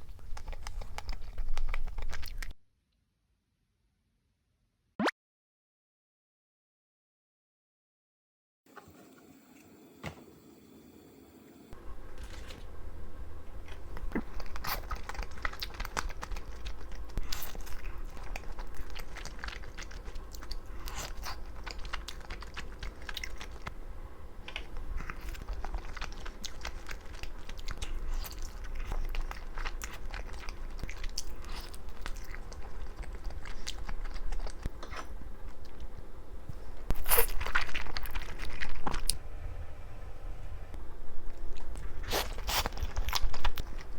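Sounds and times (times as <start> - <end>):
chewing and biting pizza: 0.0 - 2.5, 13.7 - 23.7, 24.5 - 39.2, 41.3 - 43.9
steady low hum: 10.6 - 43.9.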